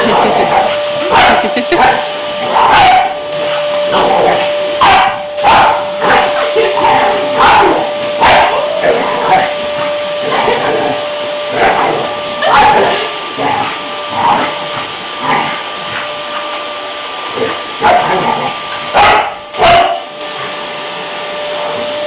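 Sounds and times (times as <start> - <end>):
vacuum cleaner motor hum: 0.0 - 22.0
dog barking: 1.0 - 3.2, 4.8 - 9.5, 12.4 - 13.0, 17.8 - 20.1.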